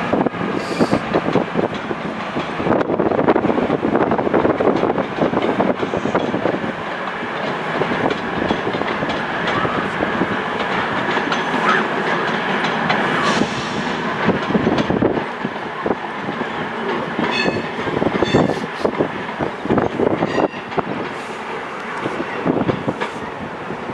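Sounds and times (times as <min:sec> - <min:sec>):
diesel train rushing noise: 0:00.0 - 0:23.9
train wheels clattering over points: 0:04.4 - 0:23.2.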